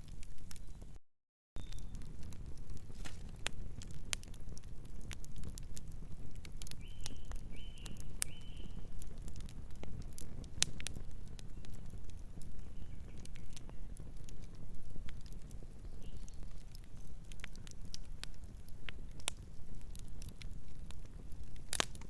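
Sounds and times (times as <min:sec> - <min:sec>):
wood fire crackling: 0:00.0 - 0:01.0, 0:01.6 - 0:22.0
distant bird calls: 0:06.8 - 0:08.8.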